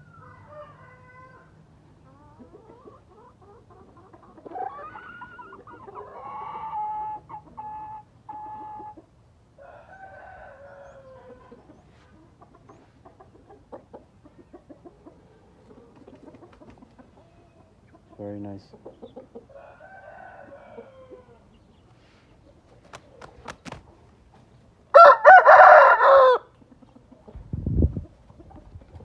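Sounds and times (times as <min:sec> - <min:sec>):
rooster crowing: 0:09.6 - 0:11.4, 0:19.5 - 0:21.4, 0:24.9 - 0:26.5.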